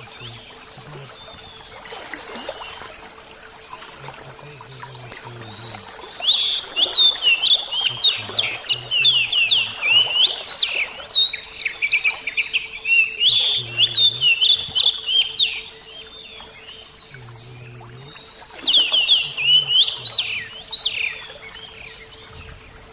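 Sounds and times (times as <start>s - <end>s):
songbird whistling and chirping: 4.9s - 16.3s, 17.1s - 22.6s.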